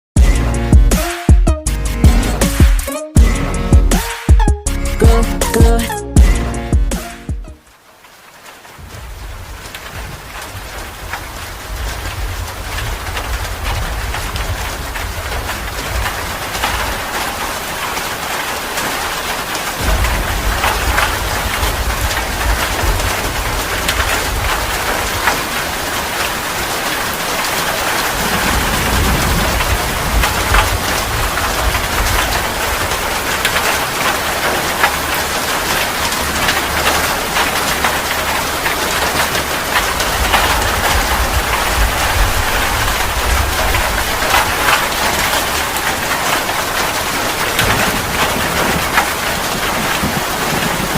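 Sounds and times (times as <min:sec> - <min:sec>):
heavy rain pouring: 0:00.2 - 0:50.9
low thunder rumble: 0:08.8 - 0:17.6, 0:19.8 - 0:26.1, 0:27.7 - 0:50.9.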